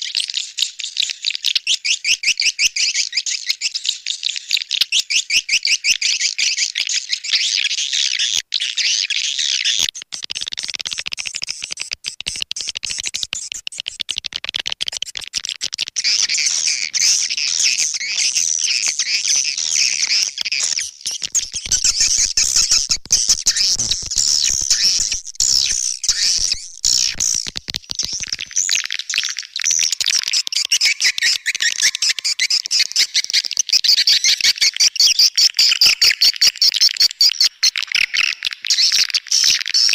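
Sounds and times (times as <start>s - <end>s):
high-pitched bird twittering: 16.0s - 35.9s.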